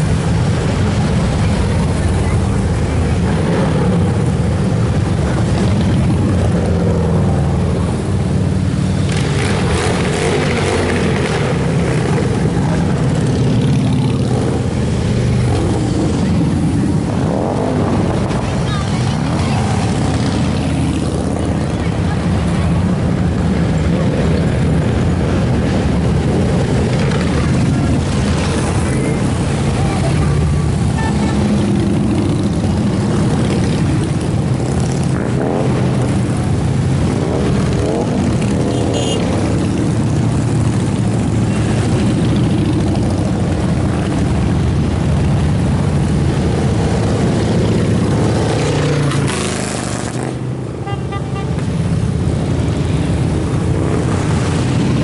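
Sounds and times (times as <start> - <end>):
motorcycle engines revving: 0.0 - 55.0
motorcycles rumbling past: 0.0 - 55.0.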